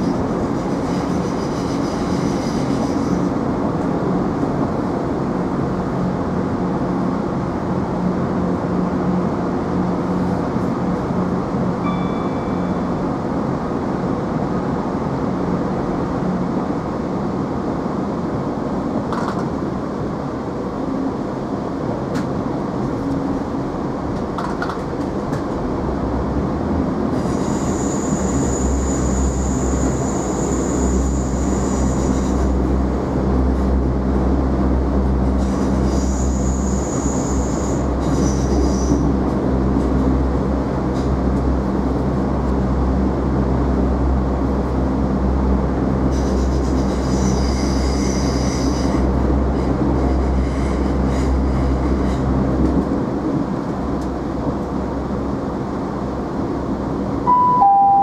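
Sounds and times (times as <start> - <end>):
train running noise: 0.0 - 58.0
low engine drone: 8.4 - 15.6, 56.1 - 58.0.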